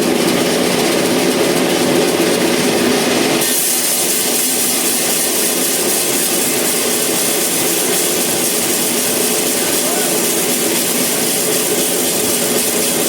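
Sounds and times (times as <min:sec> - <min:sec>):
sawmill saw cutting wood: 0:00.0 - 0:13.0.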